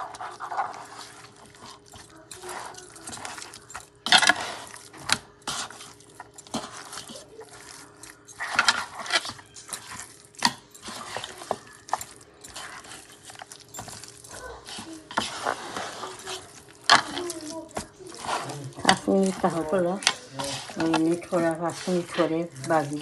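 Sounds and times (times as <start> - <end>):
utensils and dishes clinking: 0.0 - 23.0.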